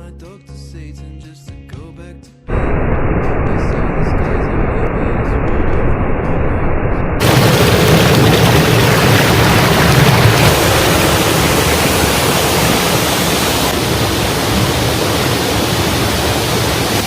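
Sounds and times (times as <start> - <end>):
waterfall rushing: 7.2 - 17.0.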